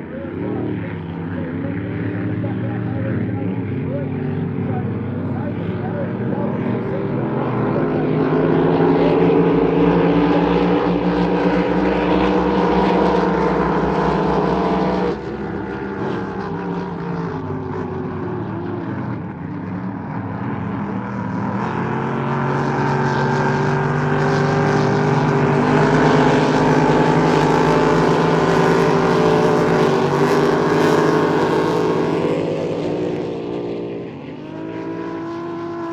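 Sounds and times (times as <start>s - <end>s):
motorboat engine running hard: 0.0s - 35.9s.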